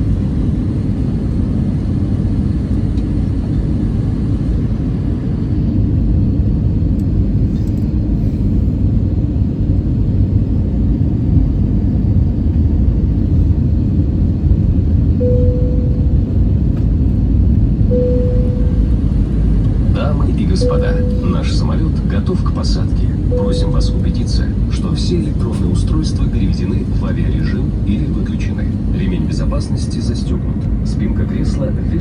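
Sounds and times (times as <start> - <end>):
aircraft cabin engine rumble: 0.0 - 32.0
short steady tones: 15.2 - 16.5, 17.9 - 19.4, 20.6 - 21.7, 23.3 - 24.5.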